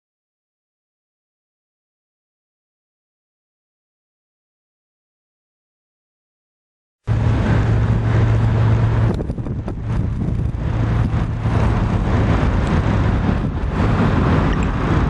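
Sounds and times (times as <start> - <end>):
low hum: 7.1 - 15.0
low vehicle rumble: 7.1 - 15.0
wind on microphone: 7.1 - 15.0.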